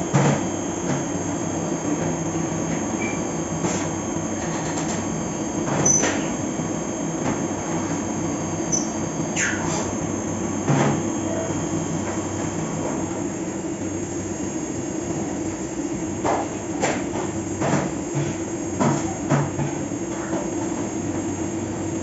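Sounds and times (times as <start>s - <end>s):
milling machine spindle drone: 0.0s - 17.2s.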